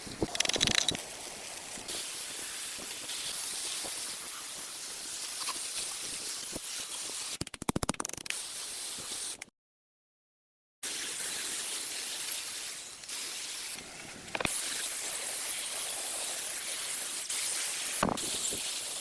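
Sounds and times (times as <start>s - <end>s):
hissing spray: 10.9s - 19.0s.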